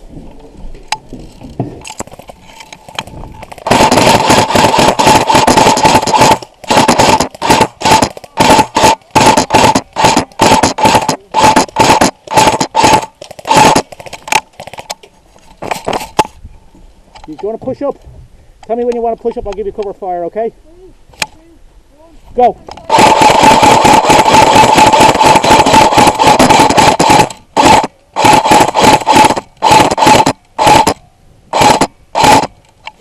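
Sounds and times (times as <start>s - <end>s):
gearbox whine: 1.2s - 13.8s, 22.9s - 32.8s
airsoft gun firing bursts: 3.5s - 14.8s, 22.9s - 32.5s.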